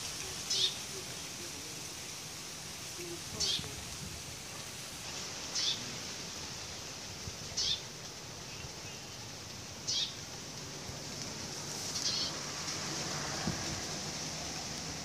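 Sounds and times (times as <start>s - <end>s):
steady background hiss: 0.0s - 15.0s
bird calling: 0.3s - 0.9s, 3.4s - 3.8s, 5.5s - 5.9s, 7.6s - 9.2s, 9.9s - 10.2s, 12.0s - 12.4s.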